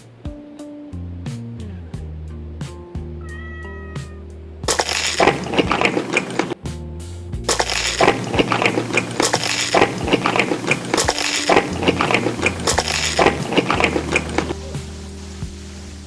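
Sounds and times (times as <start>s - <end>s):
crunchy biting and chewing: 4.7s - 6.6s, 7.5s - 14.6s.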